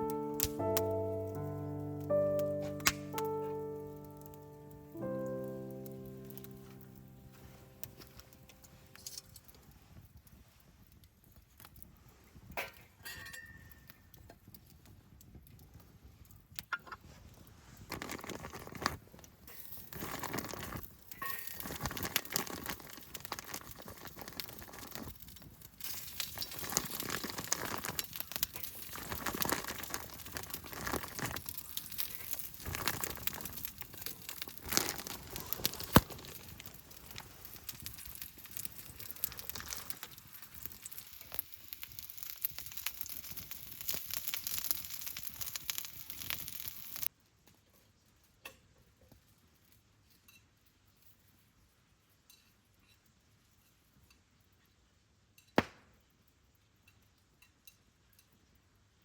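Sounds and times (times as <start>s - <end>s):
crinkling and rustling: 0.0s - 13.0s, 14.2s - 47.1s
clicks and clinks of handling: 6.4s - 9.7s, 17.9s - 42.8s.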